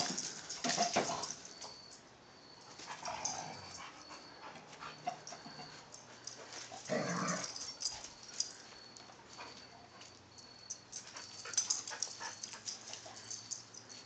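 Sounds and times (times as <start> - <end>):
dogs play-wrestling: 0.0 - 1.8, 2.7 - 10.3.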